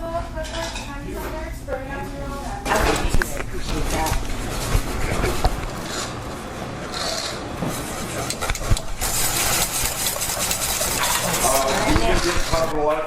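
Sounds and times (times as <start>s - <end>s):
scraping and rubbing: 2.8s - 13.0s.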